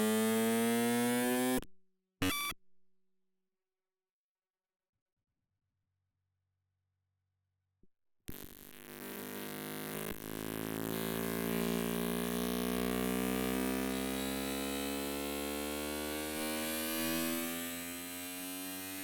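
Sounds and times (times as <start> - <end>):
electronic drone rising in pitch: 9.4 - 19.0.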